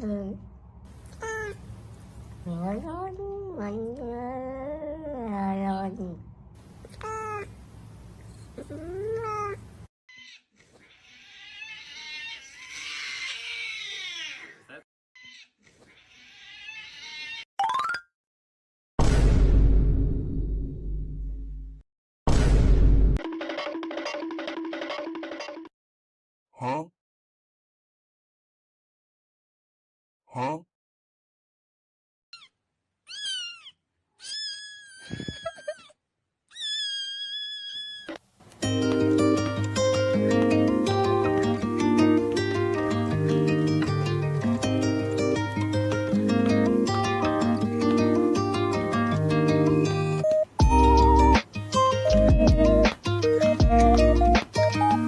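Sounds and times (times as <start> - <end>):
cat meowing: 33.1 - 35.8
plucked-string music: 38.6 - 55.0.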